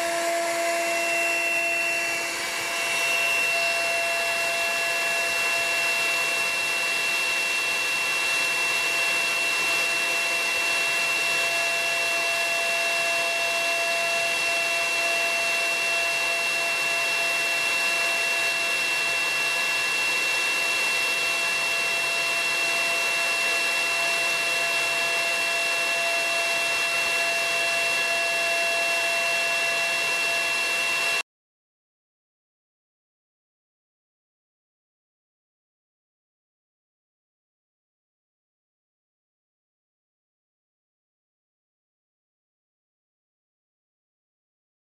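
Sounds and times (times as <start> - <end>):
router spindle whining: 0.0 - 31.2.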